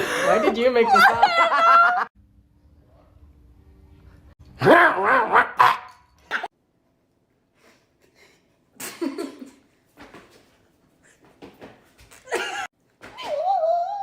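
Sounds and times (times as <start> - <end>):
person laughing: 0.0 - 2.1.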